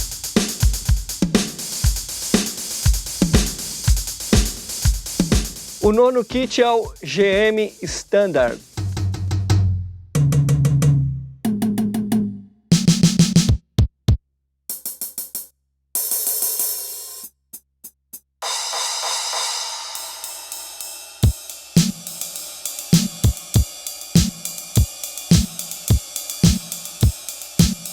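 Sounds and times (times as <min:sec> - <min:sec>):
drum and hi-hat strokes: 0:00.0 - 0:09.7, 0:12.7 - 0:13.6, 0:14.7 - 0:27.9
kick drum beat: 0:00.0 - 0:09.8, 0:12.7 - 0:14.2, 0:21.2 - 0:22.0, 0:23.0 - 0:27.9
crash cymbal ringing: 0:18.4 - 0:27.9.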